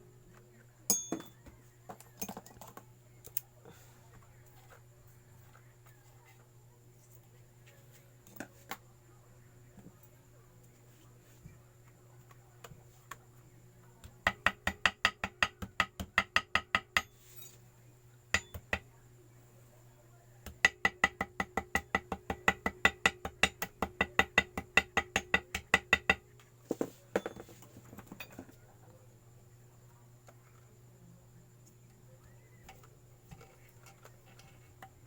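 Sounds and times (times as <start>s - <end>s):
small hammer tapping metal: 0.9s - 1.5s, 14.0s - 17.6s, 18.4s - 18.9s, 20.4s - 26.3s.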